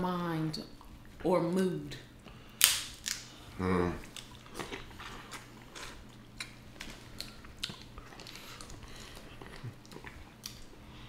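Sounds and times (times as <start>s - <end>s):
chewing and mouth smacks: 4.0s - 10.8s.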